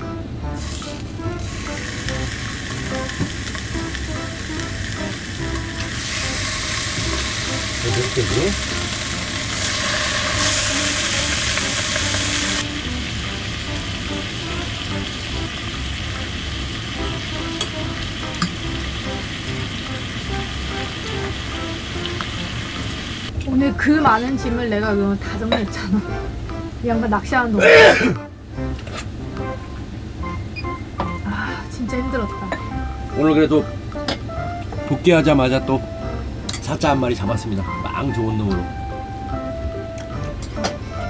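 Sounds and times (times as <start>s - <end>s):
quiet background music: 0.0s - 41.0s
meat sizzling in a grill pan: 0.6s - 23.3s.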